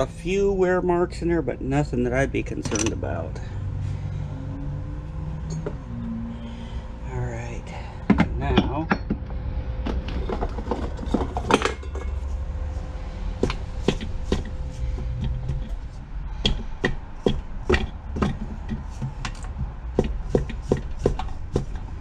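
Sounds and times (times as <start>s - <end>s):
steady low hum: 0.0s - 22.0s
hand tool knocking on metal: 8.1s - 9.2s, 13.4s - 21.9s.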